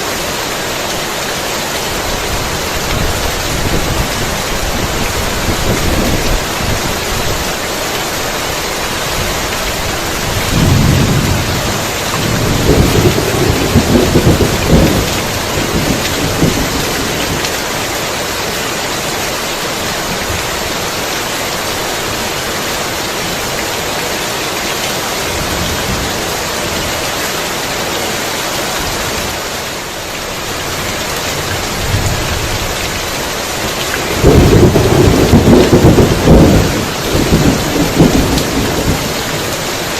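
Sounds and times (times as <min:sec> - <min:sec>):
heavy rain falling: 0:00.0 - 0:39.9
thunder rolling: 0:10.3 - 0:17.4, 0:34.1 - 0:39.2.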